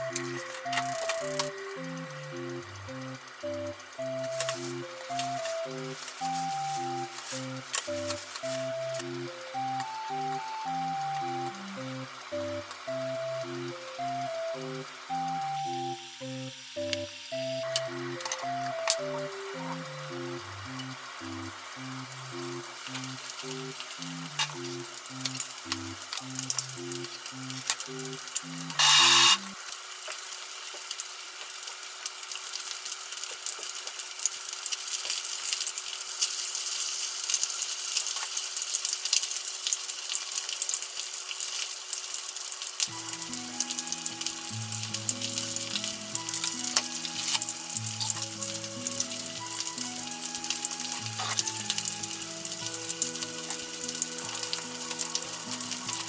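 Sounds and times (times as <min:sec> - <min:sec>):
soft background music: 0:00.0 - 0:29.6, 0:42.9 - 0:56.0
chicken sizzling in oil: 0:00.0 - 0:56.0.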